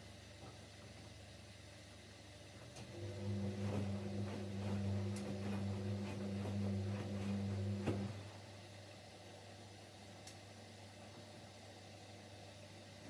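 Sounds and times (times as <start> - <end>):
washing machine motor humming: 0.2 - 9.7
clicks and knocks of tumbling wash: 2.6 - 8.3.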